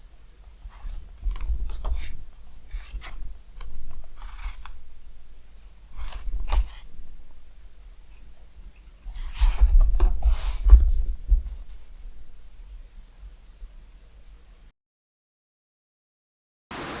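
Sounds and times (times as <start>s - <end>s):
crunching and rustling handling: 0.0s - 12.8s.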